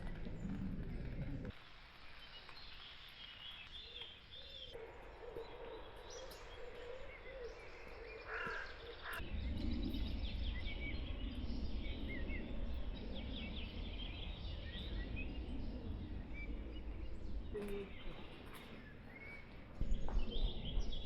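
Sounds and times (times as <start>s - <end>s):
low rumble: 0.0s - 1.5s, 9.2s - 21.0s
small birds chirping: 0.0s - 21.0s.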